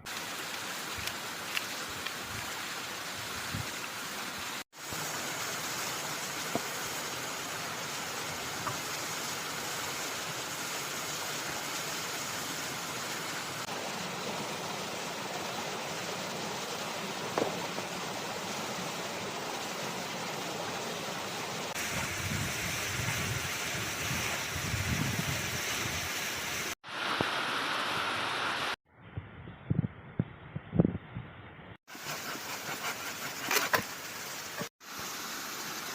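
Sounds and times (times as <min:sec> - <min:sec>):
water rushing: 0:00.0 - 0:28.8.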